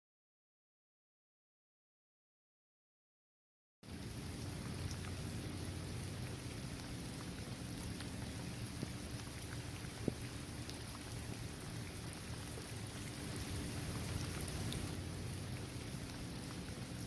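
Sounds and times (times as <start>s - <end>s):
rain falling on court and trees: 3.8s - 17.0s
raindrops ticking: 3.8s - 17.0s.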